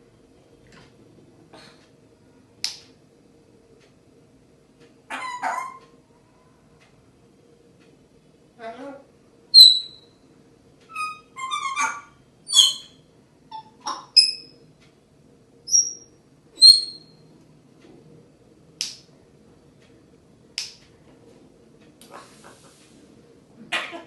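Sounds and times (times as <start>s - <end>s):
parrot harsh squawks: 5.1s - 5.8s, 10.9s - 14.4s, 23.7s - 24.0s
parrot whistling high notes: 9.6s - 10.0s, 12.5s - 12.9s, 16.6s - 17.0s.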